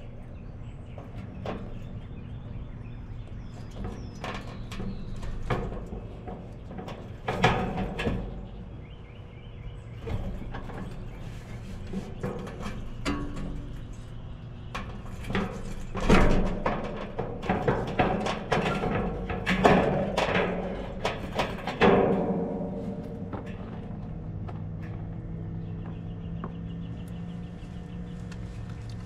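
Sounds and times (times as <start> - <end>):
steady low hum: 0.0 - 29.0
sheet metal clanks and knocks: 3.7 - 8.6, 14.7 - 25.0.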